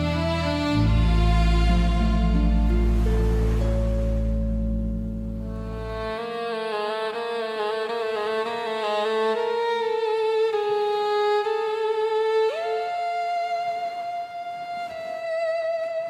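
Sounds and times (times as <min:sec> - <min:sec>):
soft low accompaniment: 0:00.0 - 0:08.6
violin with vibrato: 0:00.0 - 0:16.0.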